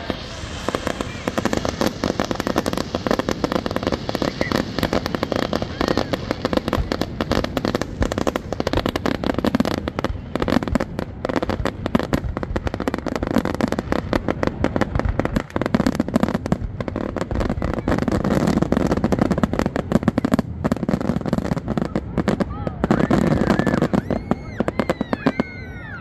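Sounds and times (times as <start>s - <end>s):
fireworks shells bursting: 0.0s - 10.8s.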